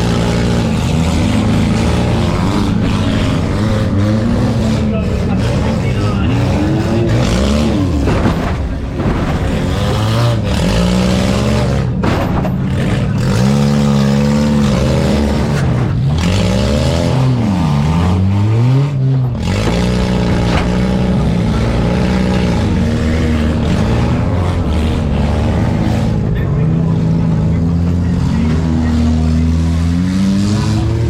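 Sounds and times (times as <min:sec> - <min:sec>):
car engines revving hard: 0:00.0 - 0:31.0
sharp knocks: 0:07.6 - 0:10.4, 0:12.0 - 0:13.0.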